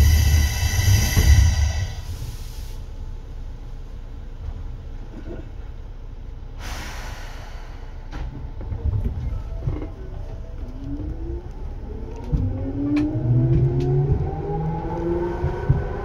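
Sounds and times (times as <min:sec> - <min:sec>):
train motor whine: 0:00.0 - 0:02.3
compressed air hiss: 0:00.0 - 0:02.9, 0:06.6 - 0:08.1
train wheel rumble: 0:00.0 - 0:16.0.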